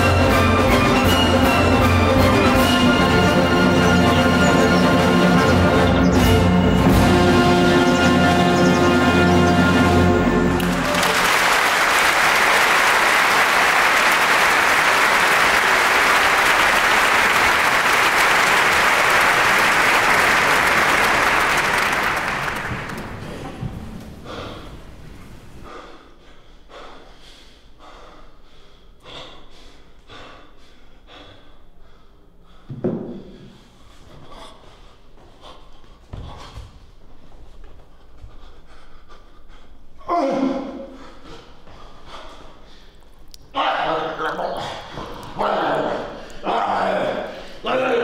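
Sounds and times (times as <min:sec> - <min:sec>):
music: 0:00.0 - 0:11.4
crowd applause: 0:09.9 - 0:24.2
scattered claps and clicks: 0:10.6 - 0:23.6.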